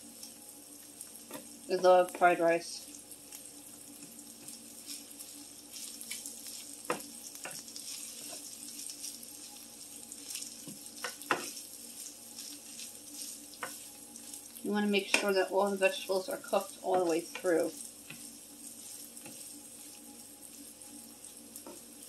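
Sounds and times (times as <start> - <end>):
rice sizzling in a frying pan: 0.0 - 22.0
spatula knocking and scraping pan: 10.3 - 11.6, 12.4 - 13.9, 15.0 - 15.4, 18.9 - 19.5.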